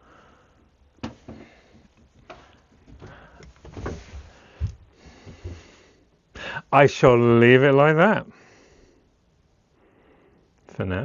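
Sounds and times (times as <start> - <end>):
knocks and clicks of handling: 1.0 - 5.6.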